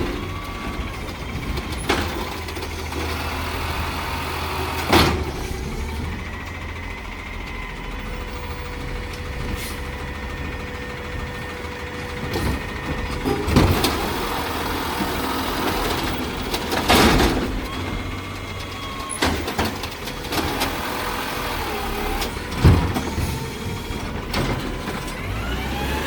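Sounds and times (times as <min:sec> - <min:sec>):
garbage truck engine idling: 0:00.0 - 0:26.0.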